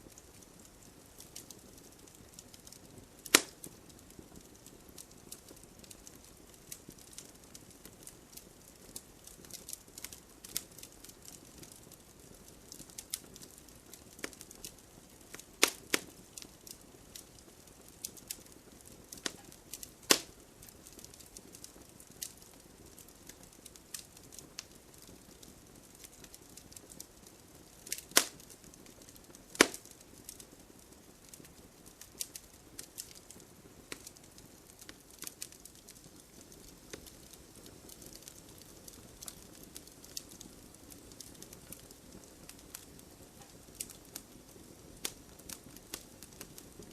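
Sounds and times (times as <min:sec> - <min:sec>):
log campfire crackling: 0:00.0 - 0:46.9.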